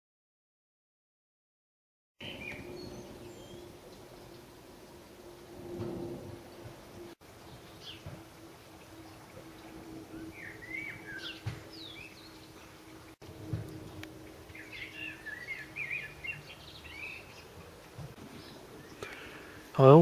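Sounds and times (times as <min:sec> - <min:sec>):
small birds chirping: 0:02.2 - 0:04.6, 0:06.5 - 0:20.0
faint steady hum: 0:02.2 - 0:20.0.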